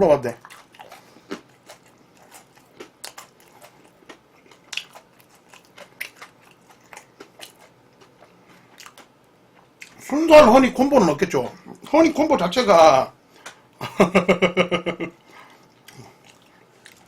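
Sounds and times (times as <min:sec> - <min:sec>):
person chewing crispy chicken: 0:00.4 - 0:10.0, 0:15.2 - 0:17.0.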